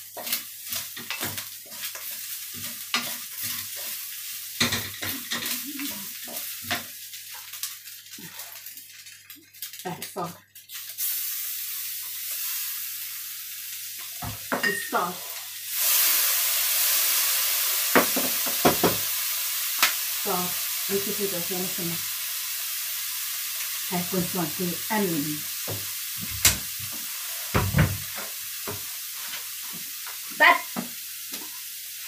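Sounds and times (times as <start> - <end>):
food sizzling in a wok: 0.0 - 32.0.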